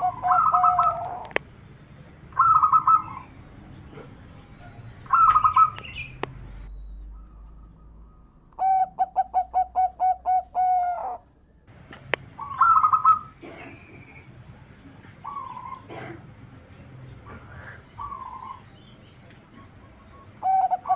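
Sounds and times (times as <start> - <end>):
dove cooing: 0.0 - 1.4, 2.3 - 6.2, 8.1 - 11.2, 12.3 - 16.5, 17.1 - 18.7, 19.4 - 20.9.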